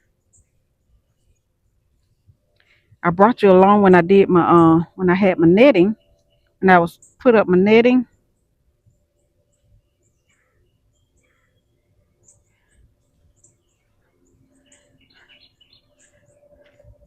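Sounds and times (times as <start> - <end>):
faint bird chirps: 8.1 - 17.0.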